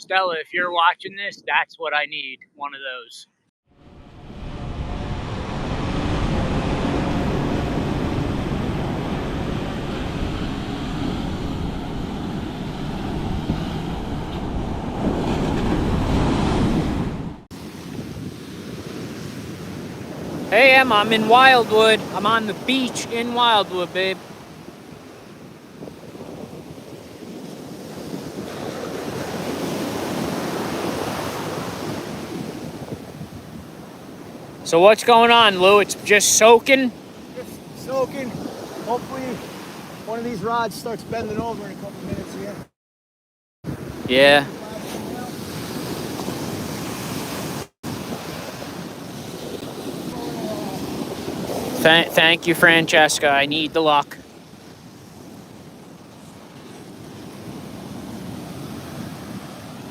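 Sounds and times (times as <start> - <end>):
wind buffeting microphone: 3.8 - 22.2, 24.3 - 34.6, 37.2 - 42.6, 43.7 - 53.0
surf breaking on beach: 3.9 - 40.2, 43.7 - 55.7.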